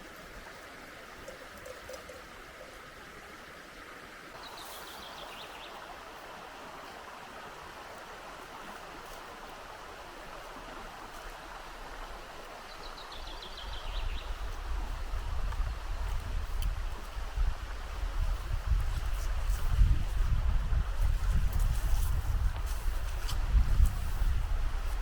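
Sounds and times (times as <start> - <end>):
river water rushing: 0.0 - 13.4
wind rumble on microphone: 13.2 - 25.0.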